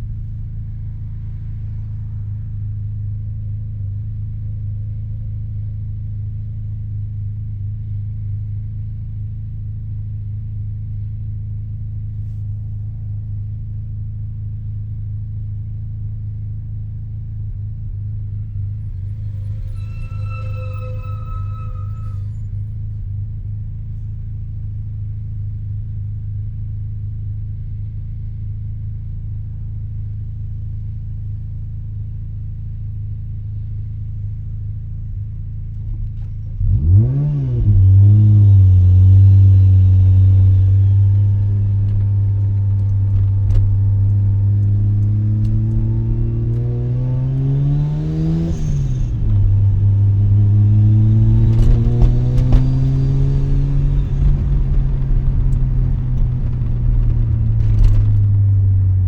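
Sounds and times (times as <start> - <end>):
rotary engine accelerating: 36.6 - 59.0.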